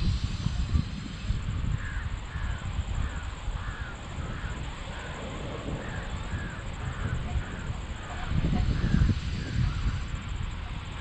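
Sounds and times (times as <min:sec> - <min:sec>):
steady low rumble: 0:00.0 - 0:11.0
crow cawing: 0:01.8 - 0:09.8.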